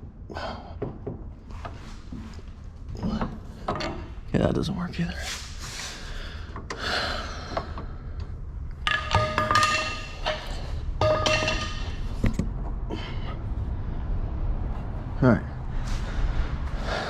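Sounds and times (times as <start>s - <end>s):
metal parts scraping and ringing: 8.8s - 12.2s.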